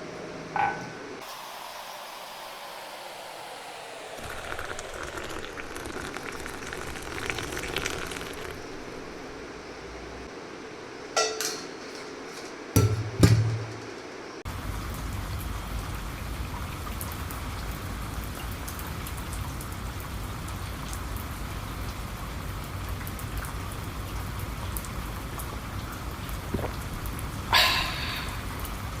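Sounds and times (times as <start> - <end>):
rain falling: 1.2 - 9.4, 14.5 - 27.5.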